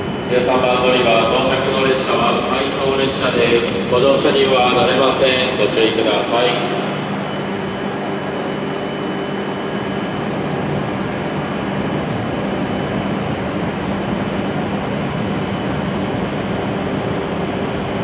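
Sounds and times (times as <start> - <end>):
stopped train humming: 0.0 - 11.2
faint high whine: 0.0 - 14.6.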